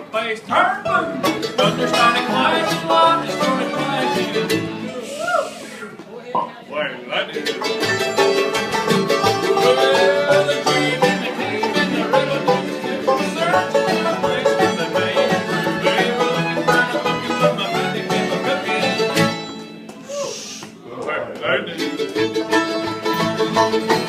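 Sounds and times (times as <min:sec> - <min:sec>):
plucked strings playing fast run: 0:07.6 - 0:19.4.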